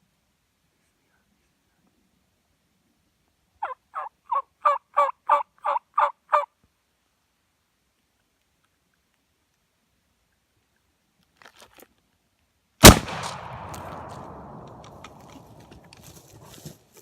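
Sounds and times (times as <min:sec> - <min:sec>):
turkey yelps: 0:03.6 - 0:06.5.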